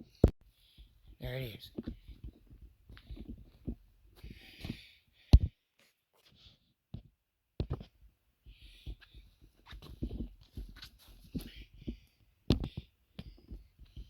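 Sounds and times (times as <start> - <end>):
knocks and rustles: 0.1 - 4.8, 6.9 - 14.0
person breathing hard: 3.0 - 6.7, 8.4 - 10.2, 11.0 - 14.0.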